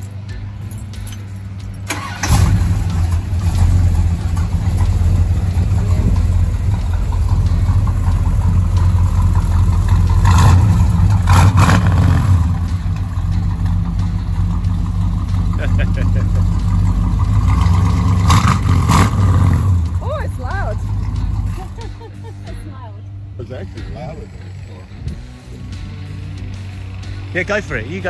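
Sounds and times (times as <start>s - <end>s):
car engine cranking: 0.0s - 22.1s
car engine running and revving: 0.0s - 22.3s, 23.1s - 28.0s.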